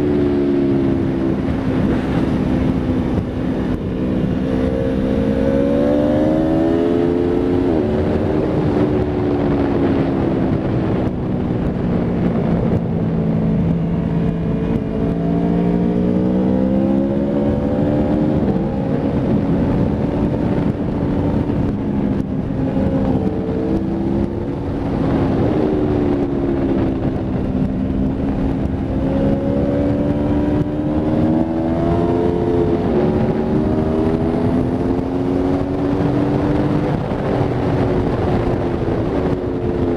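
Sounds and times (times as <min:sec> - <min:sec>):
motorcycle engine accelerating: 0:00.0 - 0:39.9
wind rush over microphone: 0:00.0 - 0:39.9.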